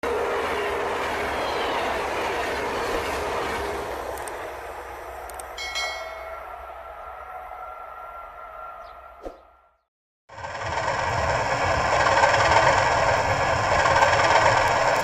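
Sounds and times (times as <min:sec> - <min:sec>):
model train rushing: 0:00.0 - 0:06.3, 0:10.3 - 0:15.0.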